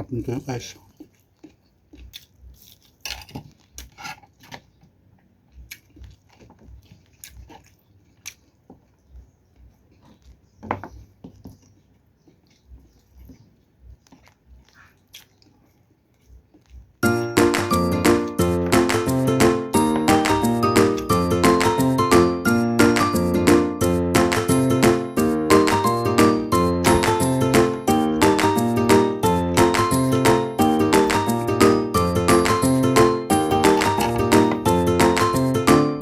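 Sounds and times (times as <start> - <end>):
chewing crunchy fried fish: 0.2 - 17.3
loud music: 17.0 - 36.0.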